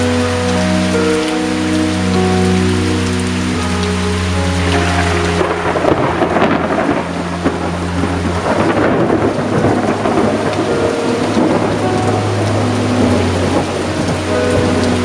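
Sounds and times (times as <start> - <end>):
heavy rain pouring: 0.0 - 15.0
rolling thunder: 3.6 - 15.0.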